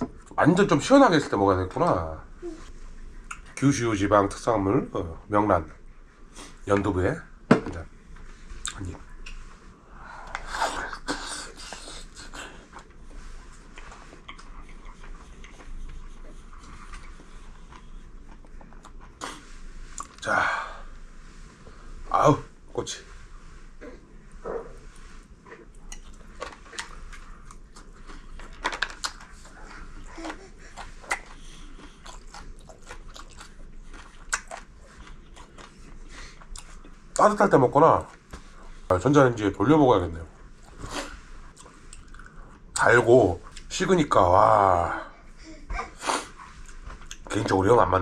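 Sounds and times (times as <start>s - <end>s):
soft chewing clicks: 13.6s - 19.3s, 25.5s - 37.3s, 41.5s - 43.7s.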